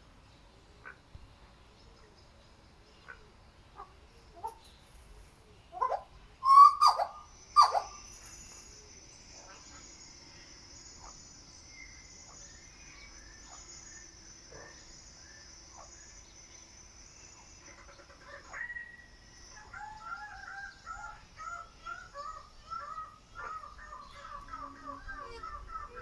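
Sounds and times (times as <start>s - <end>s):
bird calling: 5.7s - 8.7s, 17.4s - 26.0s.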